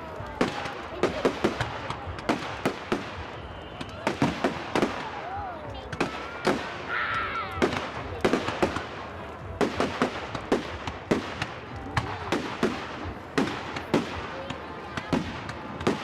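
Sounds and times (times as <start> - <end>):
firework bangs echoing: 0.2 - 16.0.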